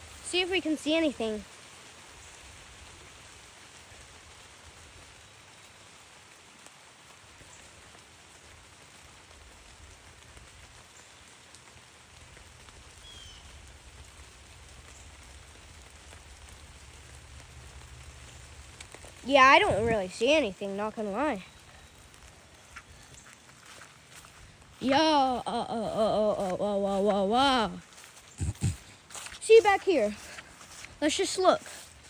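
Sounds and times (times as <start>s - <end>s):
even outdoor hiss: 0.0s - 32.0s.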